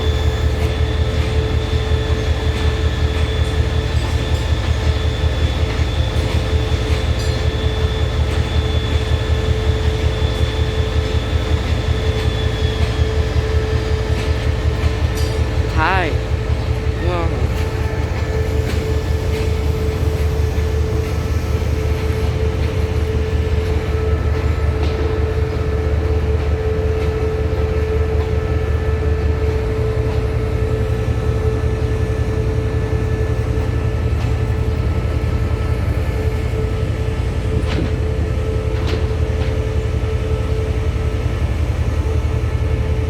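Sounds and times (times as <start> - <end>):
locomotive engine rumbling: 15.4 - 18.1.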